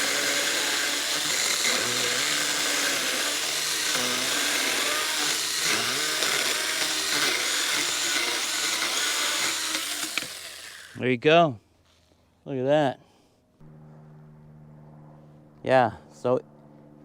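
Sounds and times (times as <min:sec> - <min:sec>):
electric chainsaw cutting wood: 0:00.0 - 0:11.0.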